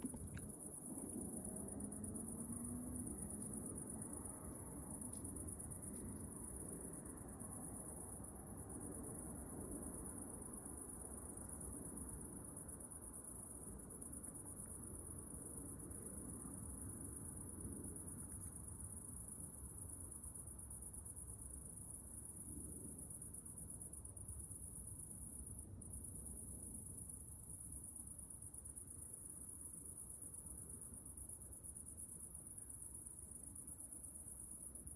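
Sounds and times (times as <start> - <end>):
low steady rumble: 0.0 - 10.9
night insects trilling: 0.0 - 34.9.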